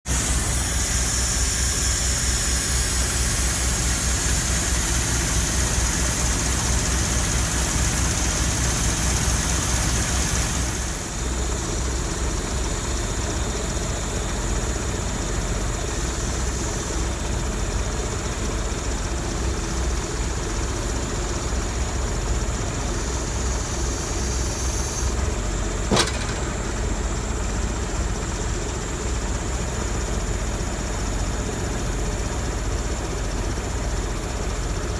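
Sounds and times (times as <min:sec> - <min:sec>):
diesel engine idling: 0:00.1 - 0:34.9
sharp knock: 0:25.9 - 0:26.7.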